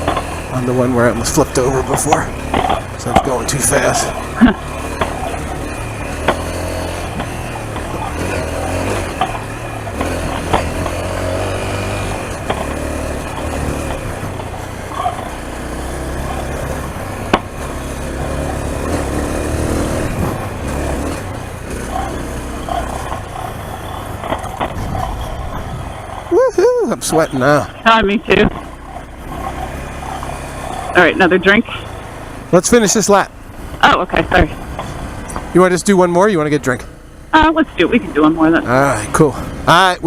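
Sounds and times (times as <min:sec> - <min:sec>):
motorcycle engine revving: 0:00.0 - 0:40.0
sharp knocks: 0:06.2 - 0:08.0, 0:17.2 - 0:17.6
wind rushing: 0:24.6 - 0:26.3.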